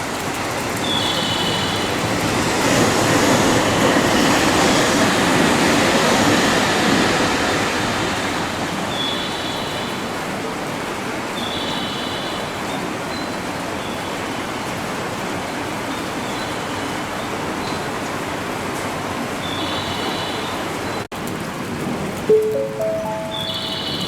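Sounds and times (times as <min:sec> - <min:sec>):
train rushing rumble: 0:00.2 - 0:10.2
high train squeals: 0:00.8 - 0:10.2.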